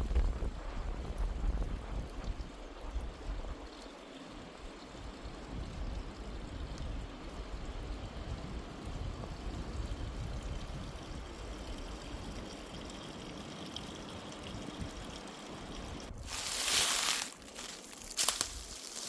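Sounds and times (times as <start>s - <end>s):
wind gusts buffeting microphone: 0.0s - 3.8s, 4.6s - 12.9s
wind blowing: 0.0s - 19.0s.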